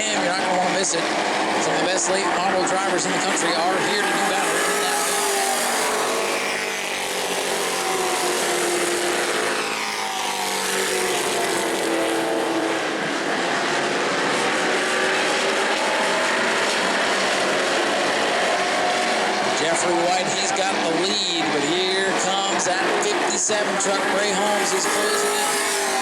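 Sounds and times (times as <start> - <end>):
race truck engines accelerating: 0.0 - 26.0.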